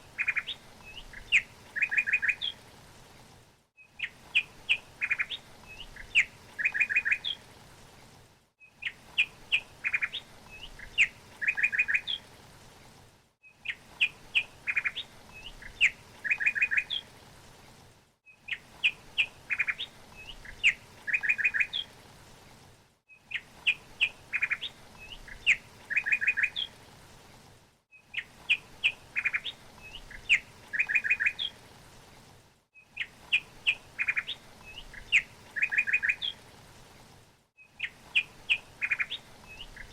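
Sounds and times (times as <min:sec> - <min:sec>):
songbird chirping and trilling: 0:00.2 - 0:02.6, 0:03.8 - 0:07.4, 0:08.6 - 0:12.2, 0:13.5 - 0:17.1, 0:18.4 - 0:21.9, 0:23.2 - 0:26.7, 0:28.0 - 0:31.6, 0:32.9 - 0:36.4, 0:37.6 - 0:39.9.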